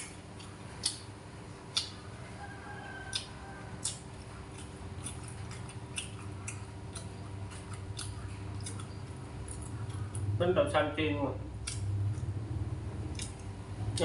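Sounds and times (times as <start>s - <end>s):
wet mouth clicks and smacks: 0.0s - 1.1s, 1.7s - 2.0s, 4.6s - 10.3s, 11.6s - 12.3s, 13.1s - 14.0s
steady low hum: 0.0s - 14.0s.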